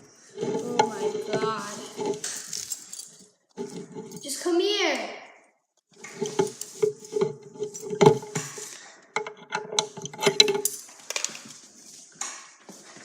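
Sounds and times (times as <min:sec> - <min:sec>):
knocks and clatter: 0:00.0 - 0:02.8, 0:03.5 - 0:04.2, 0:06.0 - 0:11.4.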